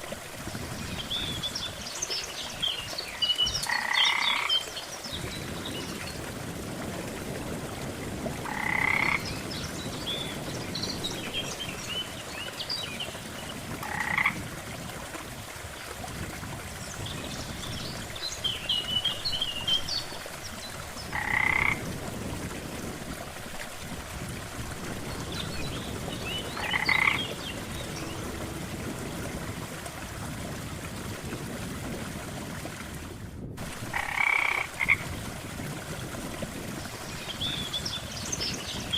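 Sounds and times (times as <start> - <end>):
frogs croaking: 3.6 - 4.6, 8.4 - 9.4, 13.8 - 14.4, 21.1 - 21.9, 26.0 - 29.3, 33.9 - 35.1.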